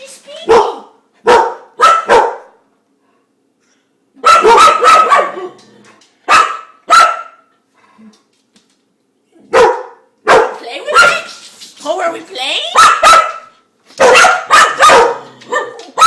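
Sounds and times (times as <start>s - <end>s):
dog barking: 0.4s - 2.6s, 4.2s - 5.6s, 6.3s - 7.5s, 9.5s - 11.3s, 12.7s - 16.0s.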